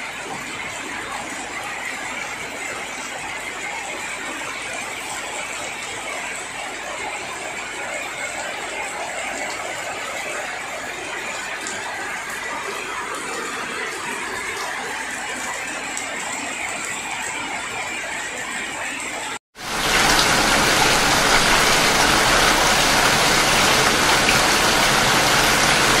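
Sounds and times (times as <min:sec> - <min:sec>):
steady rainfall hiss: 0:19.6 - 0:26.0.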